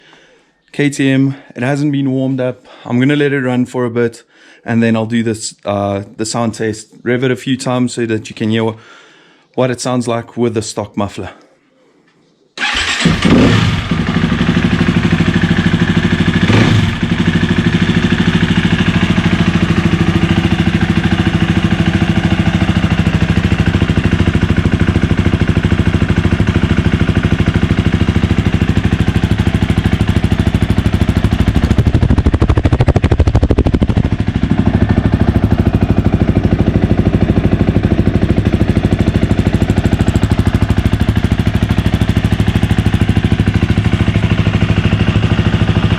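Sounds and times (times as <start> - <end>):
dirt bike engine idling: 12.6 - 45.9.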